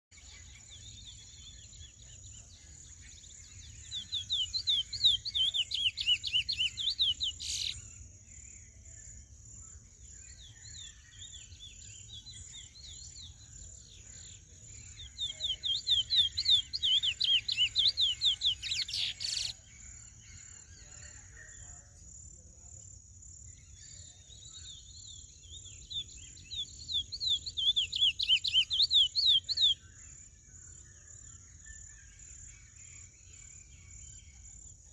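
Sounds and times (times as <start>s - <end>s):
soft bird twittering: 0.1s - 8.0s, 8.6s - 20.6s, 23.7s - 34.6s
finch whistled song: 3.7s - 7.8s, 14.3s - 19.6s, 25.2s - 29.8s.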